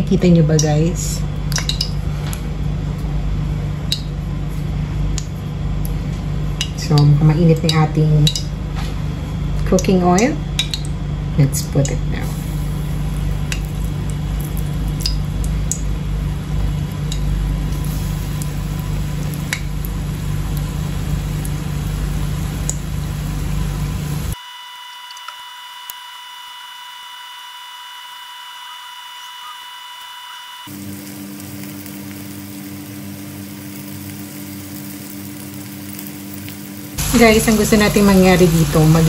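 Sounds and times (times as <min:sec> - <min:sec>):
steady motor hum: 0:00.0 - 0:39.0
tofu frying in oil: 0:12.3 - 0:24.4, 0:30.7 - 0:39.0.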